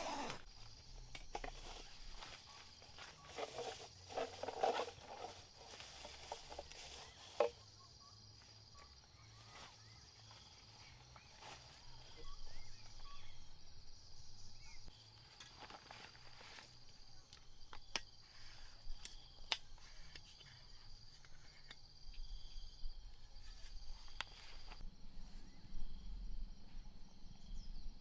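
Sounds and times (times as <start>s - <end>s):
high insect drone: 0.0s - 28.0s
gear rustling and knocking: 1.0s - 7.6s
faint bird chirps: 7.0s - 15.1s.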